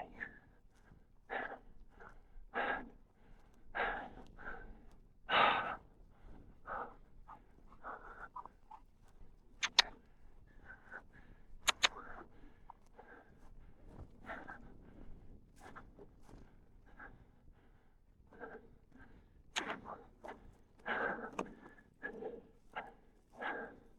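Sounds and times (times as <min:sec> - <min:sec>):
person breathing hard: 0:00.1 - 0:08.7, 0:09.6 - 0:23.9
sharp clicks: 0:09.6 - 0:10.0, 0:11.6 - 0:12.1.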